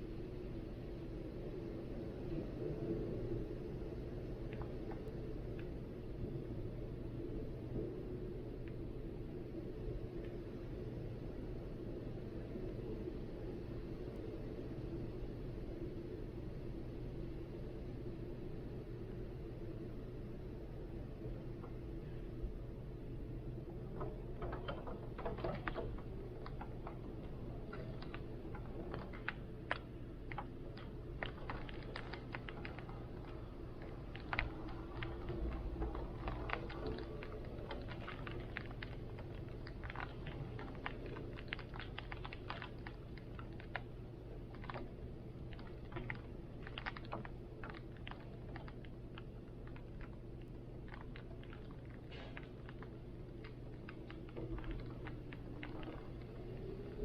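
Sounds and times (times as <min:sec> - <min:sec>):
low rumble of wind: 0:00.0 - 0:57.0
raindrops tapping on hard surface: 0:03.6 - 0:07.0, 0:21.4 - 0:57.0.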